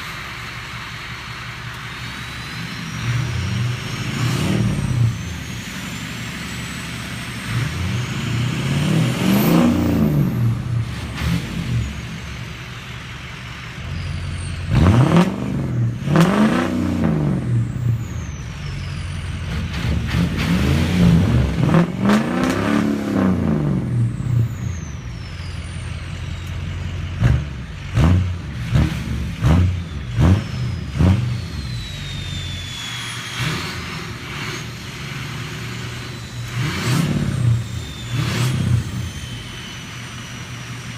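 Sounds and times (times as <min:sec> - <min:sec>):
diesel engine revving: 0:00.0 - 0:40.9
turbo whistle: 0:29.8 - 0:40.9.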